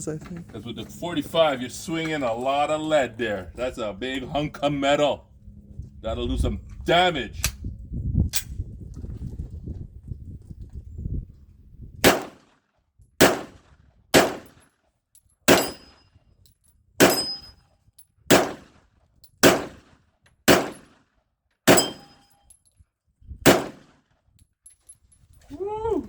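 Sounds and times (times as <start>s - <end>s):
pistol shots: 12.0s - 12.5s, 13.2s - 14.6s, 15.5s - 16.0s, 17.0s - 17.4s, 18.3s - 18.8s, 19.4s - 19.9s, 20.5s - 21.0s, 21.7s - 22.2s, 23.5s - 24.0s
steel targets ringing: 15.5s - 16.0s, 17.0s - 17.6s, 21.7s - 22.3s.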